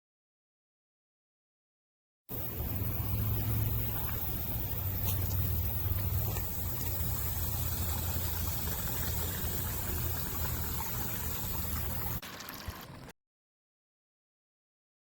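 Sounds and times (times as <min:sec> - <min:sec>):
low steady rumble: 0:02.3 - 0:12.2
fountain water trickling: 0:02.4 - 0:13.1.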